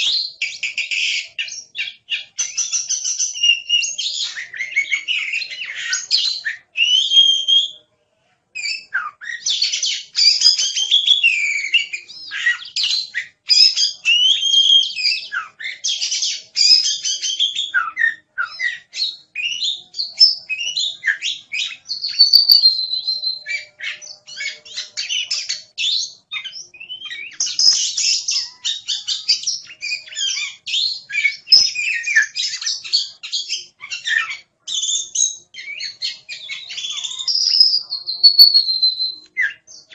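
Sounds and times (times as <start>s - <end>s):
bird singing: 0.0s - 7.8s, 8.6s - 39.9s.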